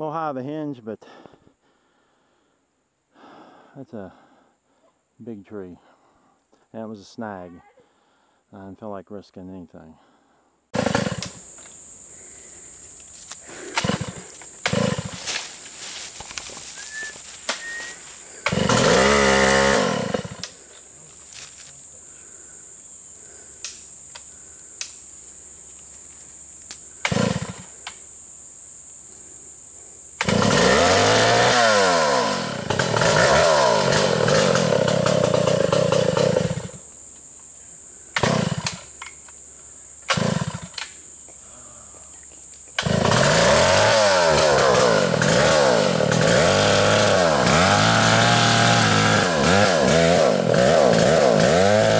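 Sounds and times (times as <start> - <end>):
chainsaw revving: 10.7 - 11.6, 13.4 - 16.1, 17.7 - 20.6, 27.0 - 27.7, 30.2 - 36.8, 38.2 - 38.9, 40.1 - 40.8, 42.8 - 51.9.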